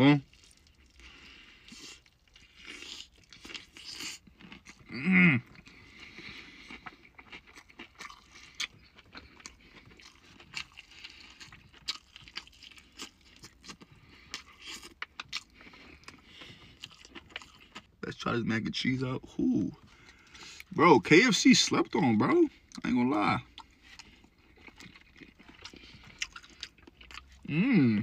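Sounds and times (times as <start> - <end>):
chewing crispy fried chicken: 0.0 - 28.0
person humming or grunting: 4.9 - 5.4, 27.4 - 28.0.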